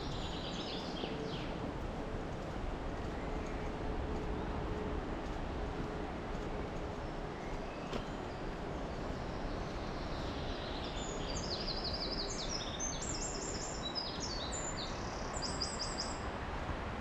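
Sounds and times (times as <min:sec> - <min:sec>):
outdoor background rush: 0:00.0 - 0:17.0
small songbird singing: 0:09.0 - 0:16.2.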